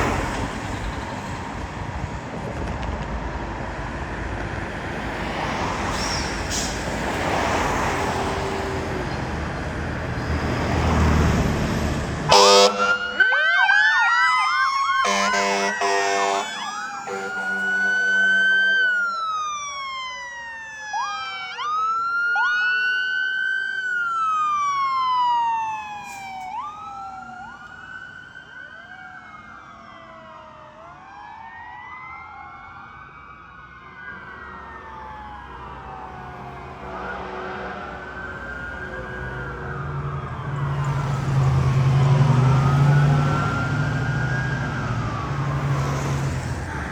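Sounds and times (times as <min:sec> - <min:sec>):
fire truck passing: 0:00.0 - 0:46.9
emergency sirens wailing: 0:03.3 - 0:46.9
low horn blasts: 0:12.3 - 0:13.3, 0:15.0 - 0:19.3, 0:36.8 - 0:39.2.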